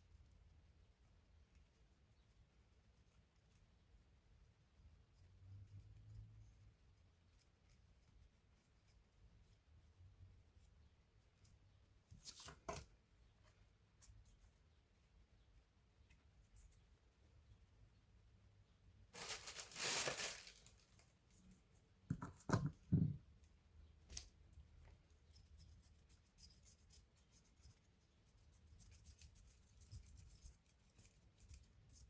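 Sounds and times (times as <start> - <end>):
rustling tearing scrape: 19.2 - 21.1.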